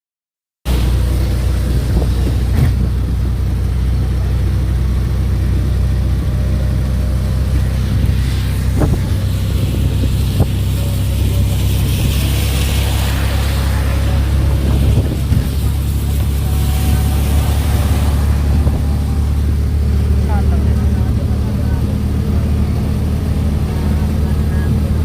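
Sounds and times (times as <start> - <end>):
engine droning: 0.7 - 25.0.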